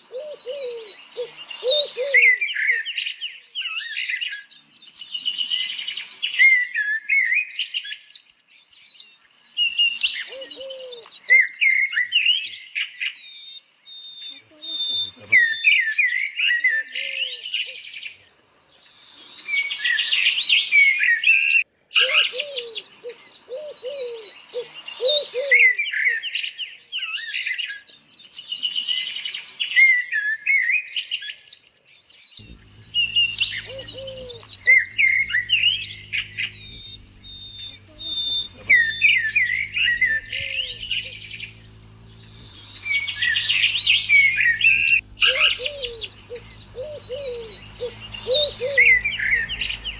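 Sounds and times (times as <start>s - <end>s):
low repeated bird calls: 0.0s - 8.3s, 9.6s - 31.1s, 31.7s - 49.9s
birds chirping and trilling: 0.0s - 49.9s
steady low hum: 32.4s - 49.9s.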